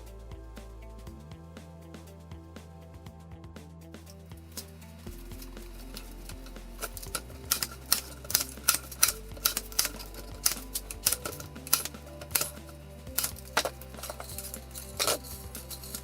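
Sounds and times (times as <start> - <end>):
quiet background music: 0.0 - 16.0
sharp clicks and taps: 4.4 - 16.0.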